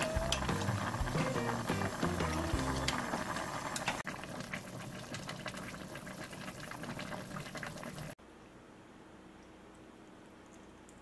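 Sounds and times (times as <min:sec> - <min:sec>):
liquid bubbling in pot: 0:00.0 - 0:08.2.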